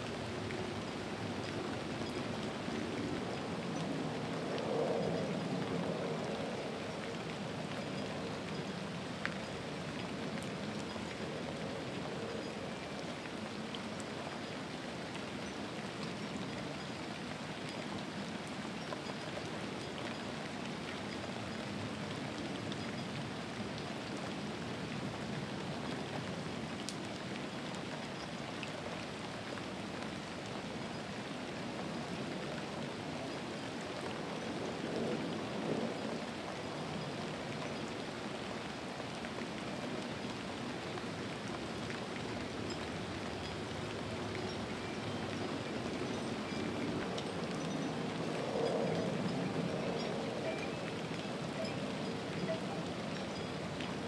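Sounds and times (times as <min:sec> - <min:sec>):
steady rain falling: 0:00.0 - 0:54.0
sharp raindrop ticks: 0:38.8 - 0:54.0.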